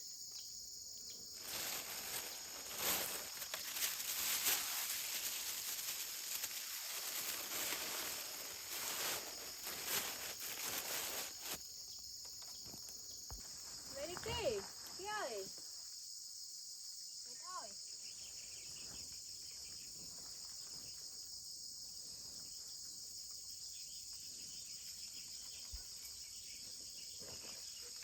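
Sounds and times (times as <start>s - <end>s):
crickets chirping: 0.0s - 28.0s
rustling crackling noise: 1.4s - 11.6s.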